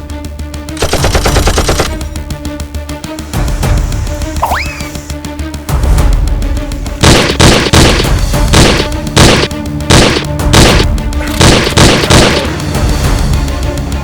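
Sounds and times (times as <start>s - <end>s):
background music: 0.0s - 14.0s
gunshots: 0.8s - 2.0s, 7.0s - 12.6s.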